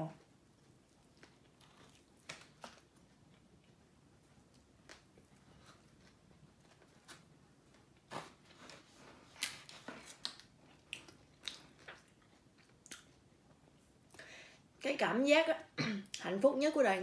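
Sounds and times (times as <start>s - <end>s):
crunchy chewing of fried chicken: 0.2s - 7.6s, 9.2s - 14.0s.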